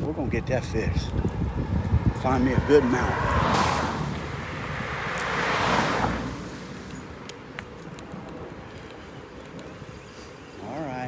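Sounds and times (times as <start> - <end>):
vehicle passing: 1.4 - 7.3.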